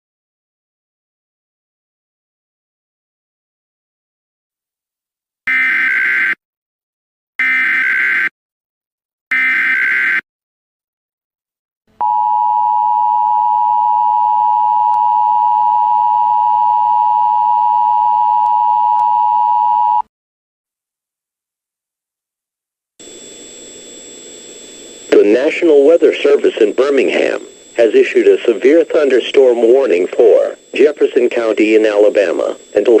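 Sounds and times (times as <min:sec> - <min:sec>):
screeching data bursts: 0:23.0 - 0:33.0.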